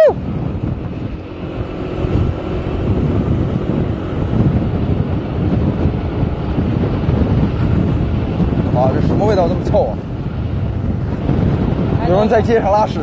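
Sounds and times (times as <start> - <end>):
wind on microphone: 0.0 - 13.0
scooter engine: 0.7 - 9.1.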